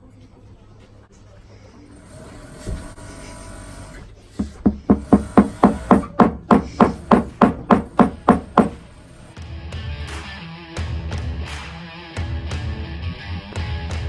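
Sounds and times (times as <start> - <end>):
small hammer tapping: 4.4 - 8.8.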